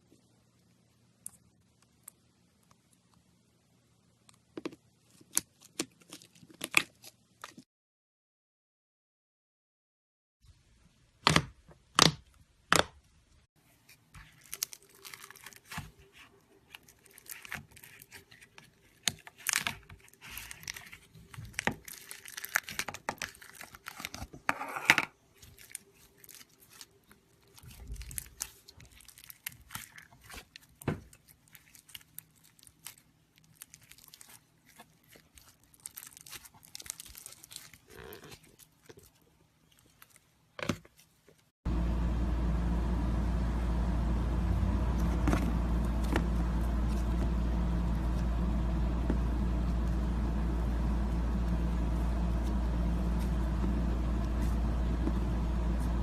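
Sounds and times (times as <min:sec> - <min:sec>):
slime squelching and crackling: 0:13.9 - 0:41.5.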